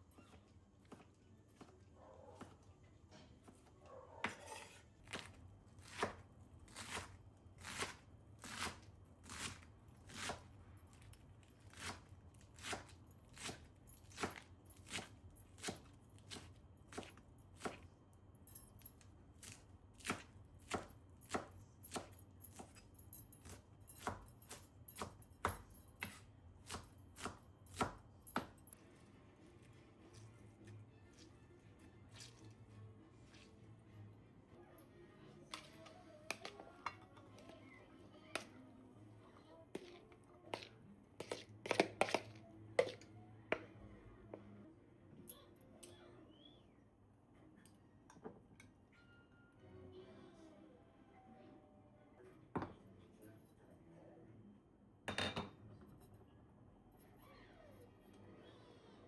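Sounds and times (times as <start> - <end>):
knife chopping on cutting board: 3.4 - 10.5, 12.6 - 17.9, 19.4 - 22.8, 23.4 - 28.6, 40.5 - 43.0.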